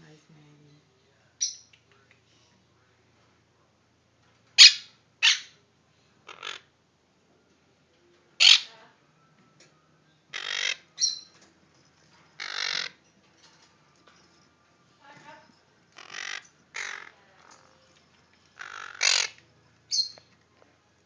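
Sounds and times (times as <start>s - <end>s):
parrots squawking: 4.6s - 5.6s, 6.2s - 6.8s, 8.4s - 8.8s, 10.3s - 11.4s, 12.3s - 13.1s, 15.9s - 17.8s, 18.5s - 20.4s.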